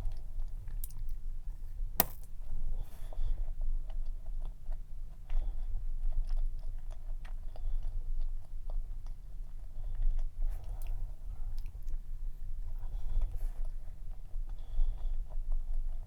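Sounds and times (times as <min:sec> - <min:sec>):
chewing cookie with clicks: 0:03.1 - 0:12.0.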